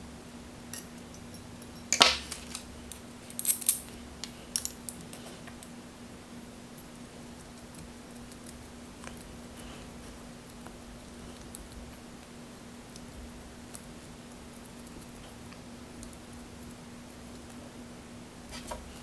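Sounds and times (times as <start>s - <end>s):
faint steady hum: 0.0s - 19.0s
metal tools clinking on screws: 0.8s - 3.9s.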